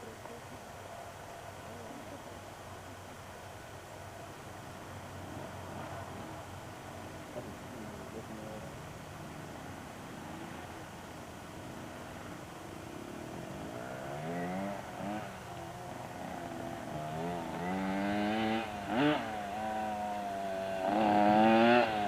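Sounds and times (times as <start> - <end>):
small motorcycle engine revving: 11.6 - 22.0.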